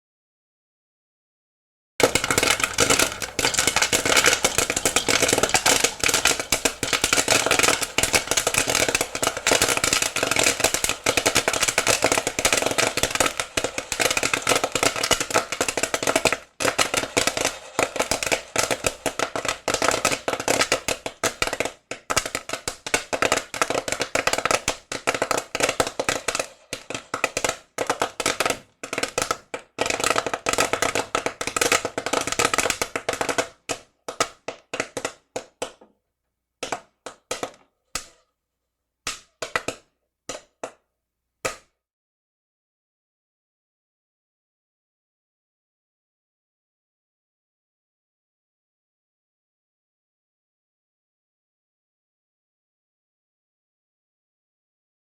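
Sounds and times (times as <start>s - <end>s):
popcorn popping in a pan: 2.0s - 36.0s, 36.6s - 38.3s, 39.1s - 41.7s.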